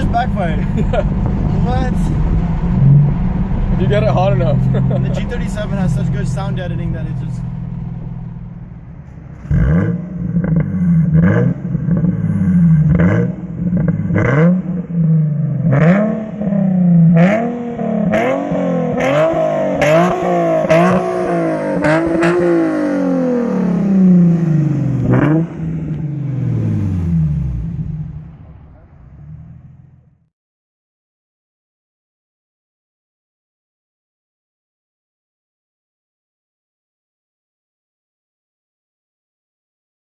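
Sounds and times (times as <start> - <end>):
car engine revving: 0.0 - 30.2
exhaust crack: 0.0 - 30.2.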